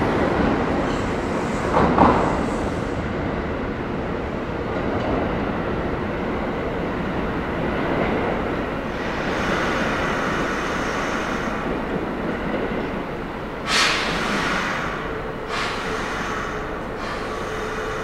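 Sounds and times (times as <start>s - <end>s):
electric train rumble: 0.0s - 18.0s
hissing bursts: 13.6s - 17.6s.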